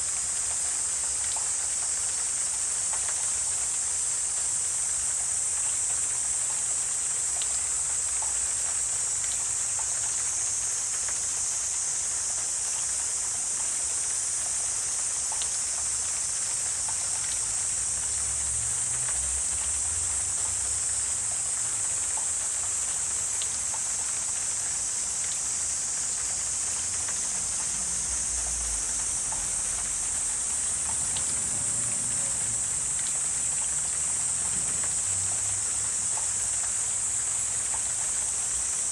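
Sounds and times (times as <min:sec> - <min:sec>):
faint scattered ticks: 0:00.0 - 0:38.9
high-pitched insect chorus: 0:00.0 - 0:38.9.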